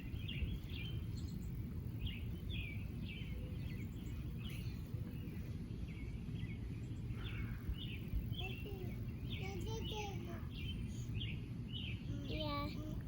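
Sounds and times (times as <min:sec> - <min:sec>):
bird chirping: 0:00.0 - 0:12.8
low background rumble: 0:00.0 - 0:13.0.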